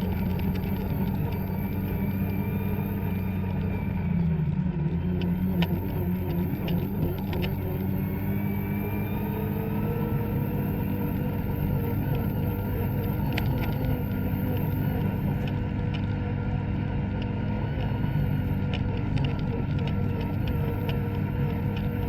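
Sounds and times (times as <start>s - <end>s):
snowmobile engine running: 0.0s - 22.0s.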